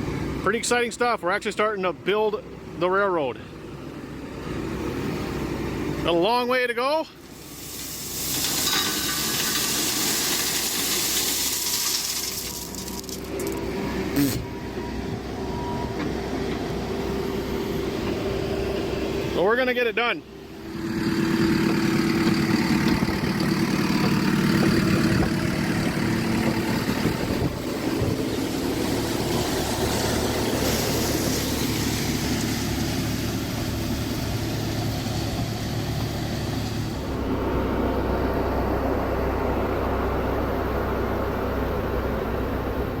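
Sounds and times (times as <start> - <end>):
heavy equipment engine running: 0.0 - 43.0.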